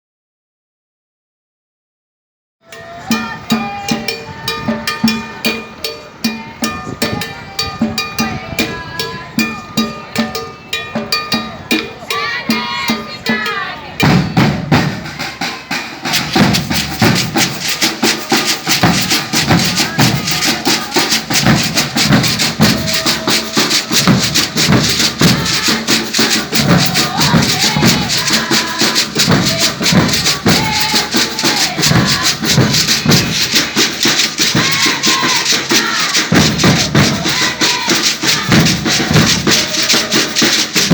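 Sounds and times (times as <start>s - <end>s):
percussion group playing rhythm: 2.6s - 40.9s
heavy low drum strokes: 14.0s - 40.9s
shakers: 16.0s - 40.9s.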